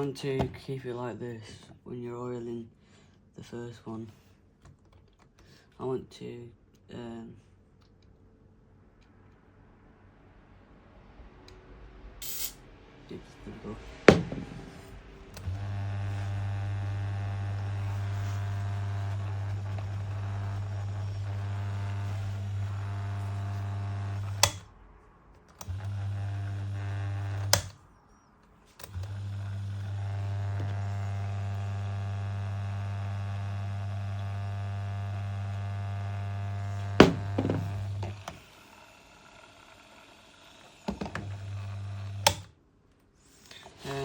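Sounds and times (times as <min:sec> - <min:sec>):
electric fan motor humming: 0:14.0 - 0:24.7, 0:25.6 - 0:27.8, 0:28.8 - 0:42.5.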